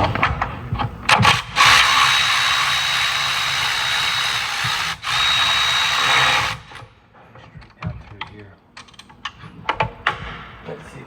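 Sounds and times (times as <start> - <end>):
power tool whining: 1.1 - 6.9.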